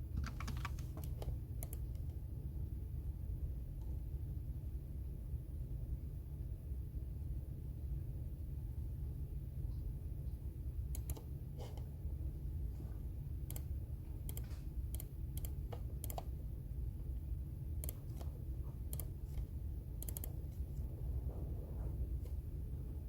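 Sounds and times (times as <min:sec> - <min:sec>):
keyboard key clicks: 0:00.2 - 0:01.9.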